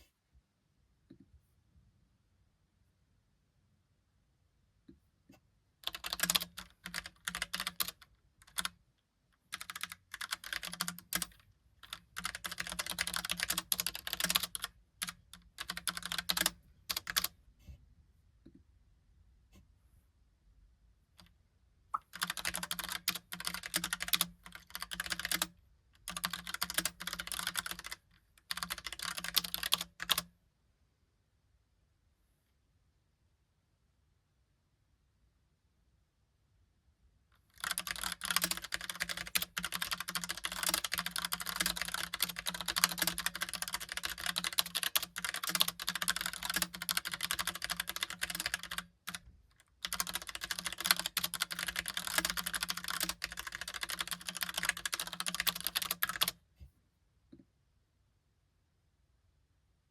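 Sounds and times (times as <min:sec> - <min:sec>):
mechanical keyboard typing: 0:05.8 - 0:08.8, 0:09.4 - 0:17.3, 0:22.0 - 0:30.3, 0:37.5 - 0:56.4.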